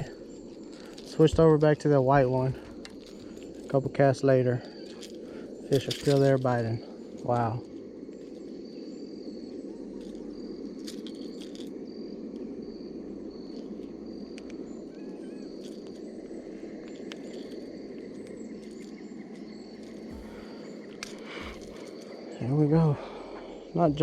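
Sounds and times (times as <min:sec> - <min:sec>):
faint warbling chirps: 0:12.7 - 0:24.0.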